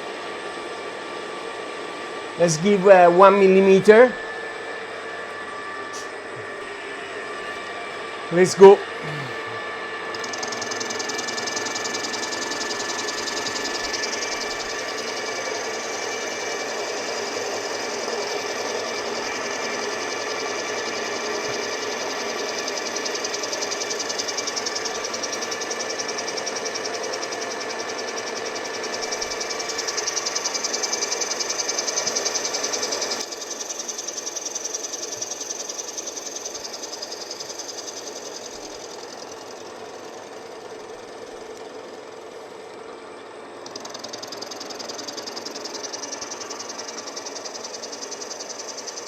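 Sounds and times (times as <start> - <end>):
milling machine spindle running: 0.0 - 49.0
milling cutter chatter: 3.9 - 33.1.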